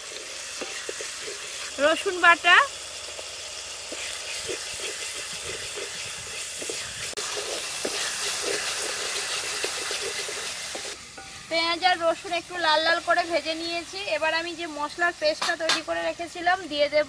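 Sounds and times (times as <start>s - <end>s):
paste sizzling in hot oil: 0.0s - 17.0s
wooden spatula scraping pot: 0.1s - 1.9s, 3.9s - 11.4s.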